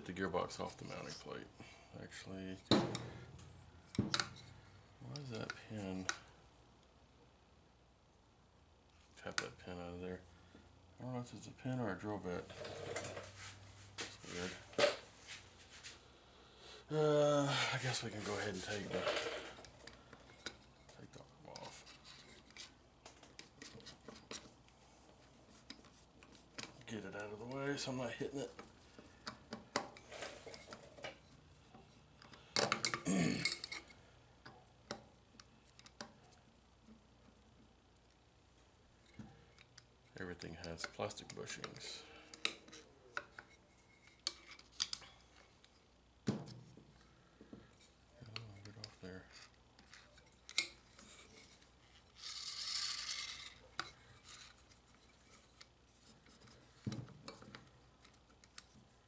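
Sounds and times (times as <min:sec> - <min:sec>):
metal parts scraping: 0:18.2 - 0:19.7, 0:49.3 - 0:56.8
small parts and tools clinking: 0:18.3 - 0:24.6, 0:25.6 - 0:36.4, 0:39.0 - 0:45.9, 0:47.0 - 0:58.9.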